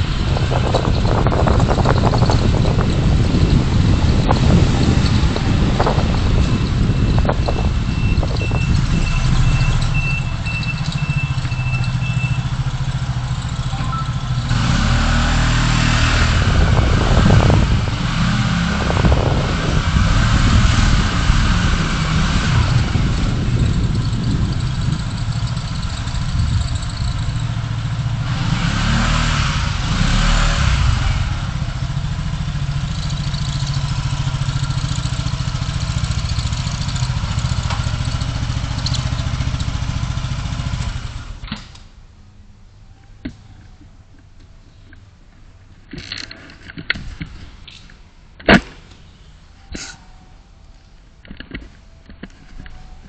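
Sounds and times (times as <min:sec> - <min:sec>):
car engine and road noise: 0:00.0 - 0:53.0
vehicles passing: 0:00.0 - 0:53.0.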